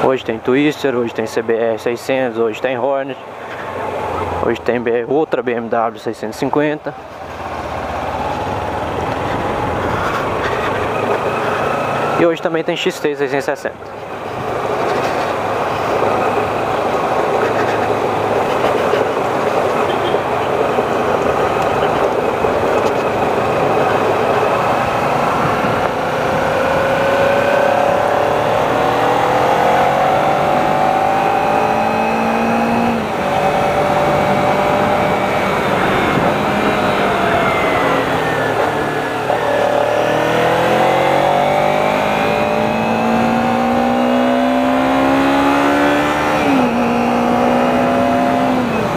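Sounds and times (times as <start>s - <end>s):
motorcycle engine accelerating: 14.2s - 48.9s
wind rush on microphone: 14.4s - 29.2s, 32.9s - 39.4s.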